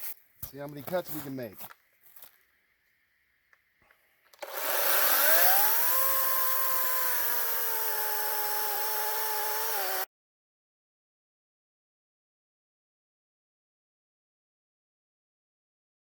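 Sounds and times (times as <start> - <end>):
electric chainsaw whining: 4.4 - 10.1.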